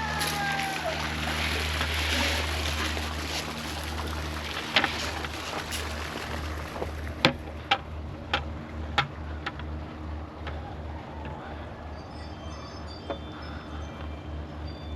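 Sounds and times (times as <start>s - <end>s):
steady low rumble: 0.0s - 11.9s.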